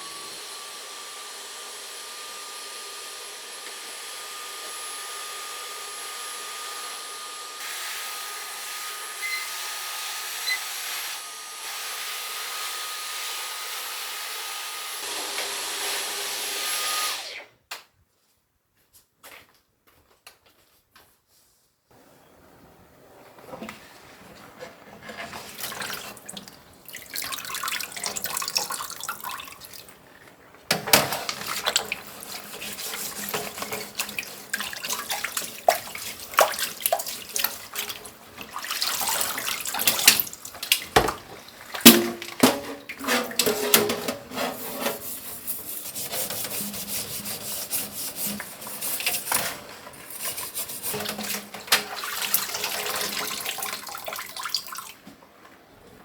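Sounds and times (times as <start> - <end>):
tap water running into sink: 25.1 - 30.0, 30.7 - 45.1, 46.2 - 55.0
knocks and clinks of dishes: 41.9 - 44.3.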